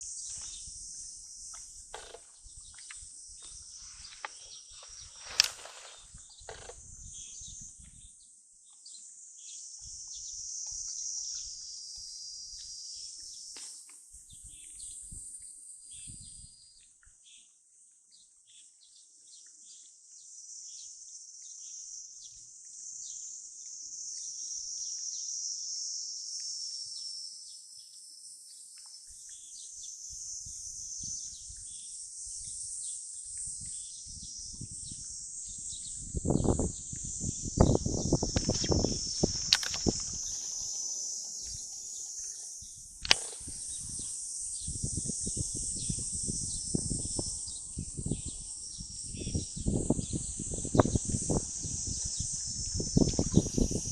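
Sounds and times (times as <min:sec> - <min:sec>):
insect chorus chirring: 0:00.0 - 0:17.5, 0:18.5 - 0:53.9
sharp click: 0:05.3 - 0:06.8, 0:38.3 - 0:40.4, 0:43.0 - 0:43.5.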